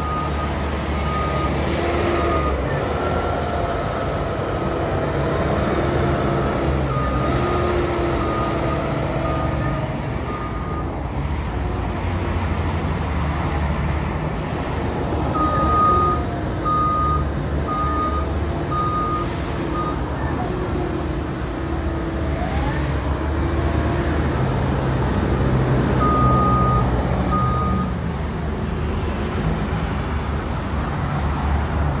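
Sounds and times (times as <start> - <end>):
reversing alarm beeps: 0.0 - 2.6, 8.2 - 10.9, 15.4 - 20.1, 26.0 - 27.9
wheel loader engine under load: 0.0 - 32.0.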